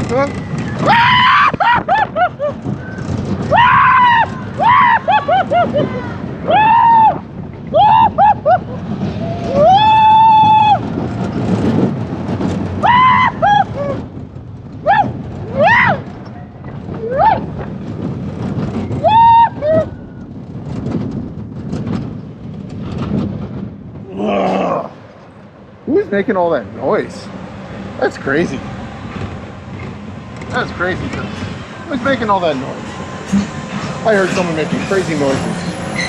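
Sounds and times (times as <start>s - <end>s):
roller coaster train rumbling: 0.0s - 36.0s
riders screaming: 0.3s - 10.9s, 12.8s - 14.1s, 14.8s - 16.2s, 18.9s - 20.0s, 24.1s - 25.0s.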